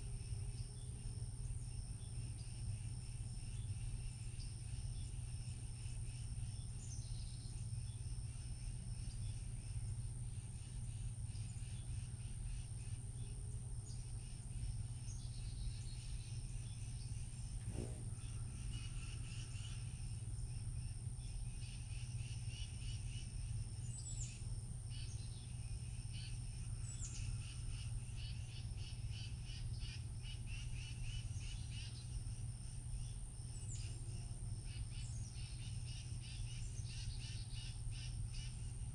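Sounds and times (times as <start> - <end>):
high-pitched insect drone: 18.5 - 38.8.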